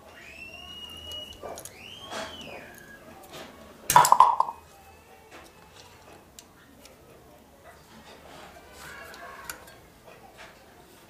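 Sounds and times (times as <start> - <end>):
loud clatter of parts: 3.3 - 4.6.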